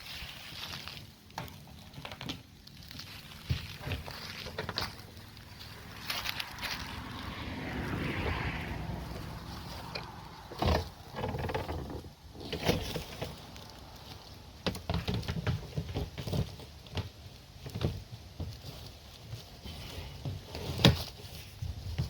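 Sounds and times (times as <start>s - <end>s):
rustling in dry leaves: 0.0s - 22.0s.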